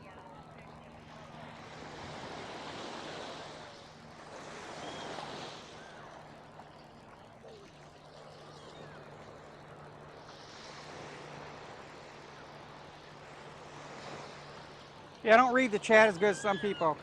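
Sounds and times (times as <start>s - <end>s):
faint distant voices: 0.0s - 4.2s
low engine hum: 0.0s - 17.0s
waves washing on beach: 0.6s - 17.0s.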